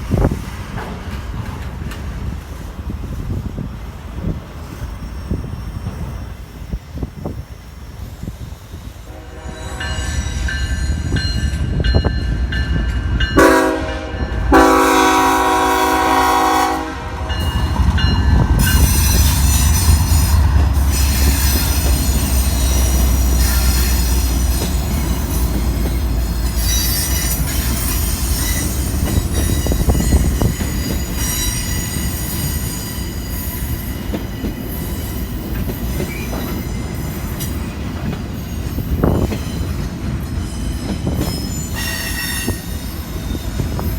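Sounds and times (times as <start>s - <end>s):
clickety-clack of train cars: 0.0s - 43.9s
train horn blasts: 9.1s - 10.6s, 13.3s - 24.6s
locomotive rumble: 10.9s - 31.7s
wheel squeal: 18.6s - 25.6s.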